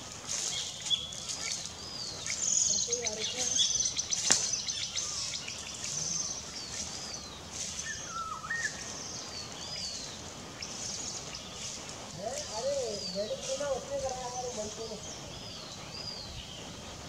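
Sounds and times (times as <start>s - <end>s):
high downward-sliding bird chirps: 0.3s - 16.7s
lower wavering bird call: 0.5s - 11.5s.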